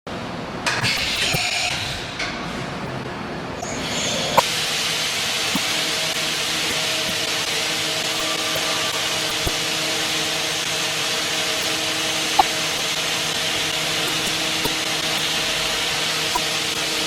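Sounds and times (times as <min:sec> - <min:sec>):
machine cutting metal with hiss: 0:08.2 - 0:09.6.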